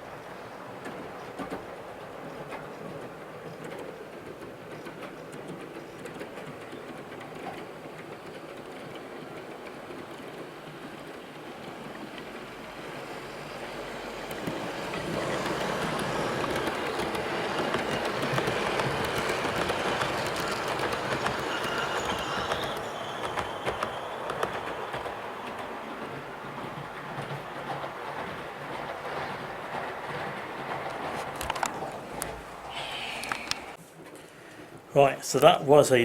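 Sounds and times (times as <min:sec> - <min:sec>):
model train wheels clicking on rails: 0:00.2 - 0:35.9.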